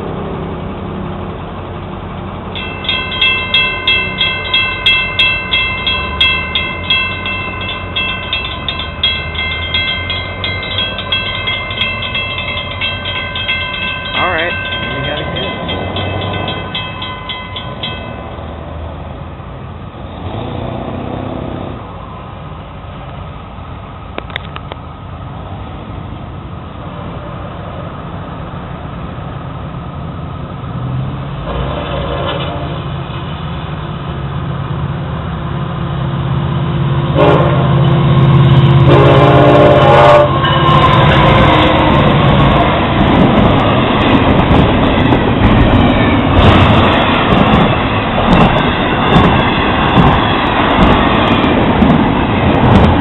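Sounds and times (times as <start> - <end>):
diesel engine rumble: 0.0 - 53.0
wheel-on-rail noise: 0.0 - 53.0
container cars clacking: 2.5 - 18.5
train horn blasts: 37.2 - 37.7, 38.3 - 41.7.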